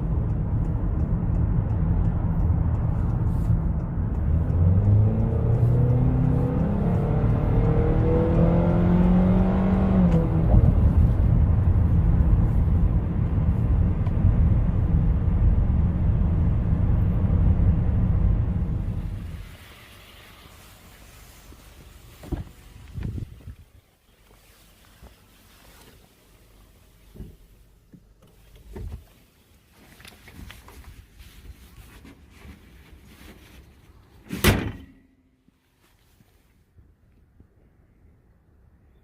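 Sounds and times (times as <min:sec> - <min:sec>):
minivan engine running: 0:00.0 - 0:29.1.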